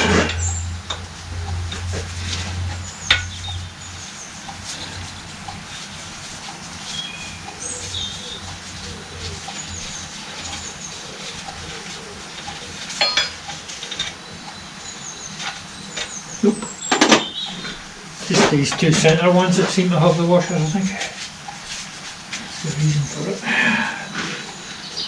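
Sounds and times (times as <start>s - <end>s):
low hum: 0.0s - 18.2s
birds chirping: 0.0s - 25.0s.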